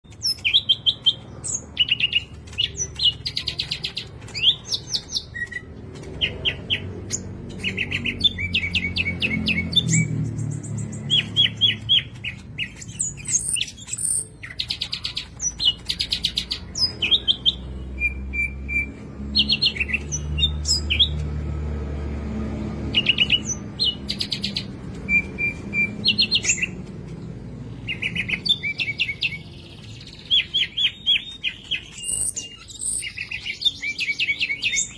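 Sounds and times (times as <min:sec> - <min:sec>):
songbird chirping and trilling: 0:00.0 - 0:34.9.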